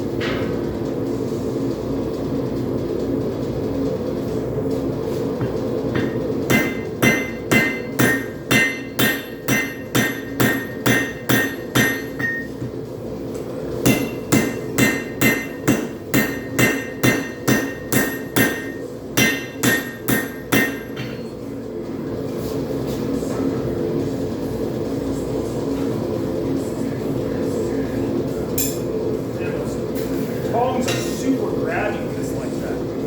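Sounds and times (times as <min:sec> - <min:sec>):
hammer striking metal on anvil: 0:05.4 - 0:12.7, 0:13.8 - 0:21.3, 0:28.6 - 0:28.9.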